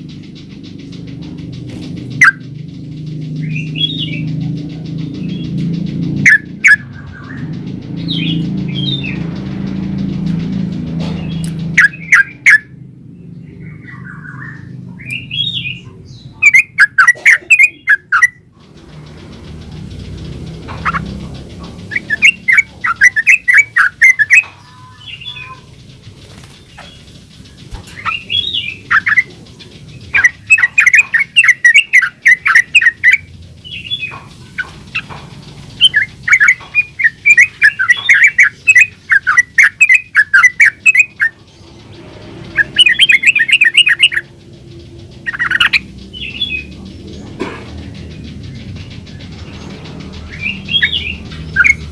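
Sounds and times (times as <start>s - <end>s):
bulbul singing bubbling phrases: 16.3s - 18.4s, 21.8s - 25.9s.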